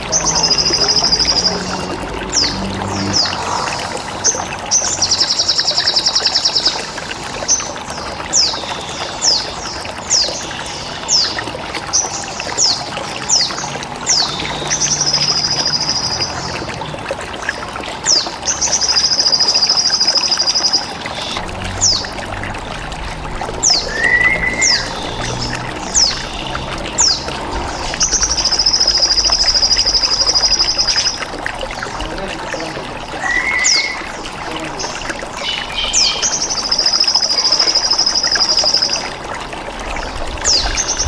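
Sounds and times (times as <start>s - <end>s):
trickle of running water: 0.0s - 41.0s
bird chirps sweeping downward: 23.6s - 31.2s, 33.2s - 34.2s.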